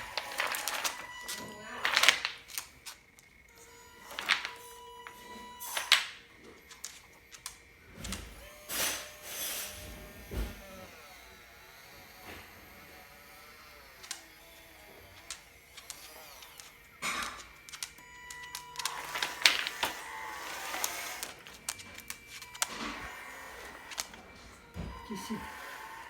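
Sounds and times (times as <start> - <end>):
plastic parts clicking: 0.0 - 8.3, 14.0 - 26.0
small electric motor whining: 0.0 - 26.0.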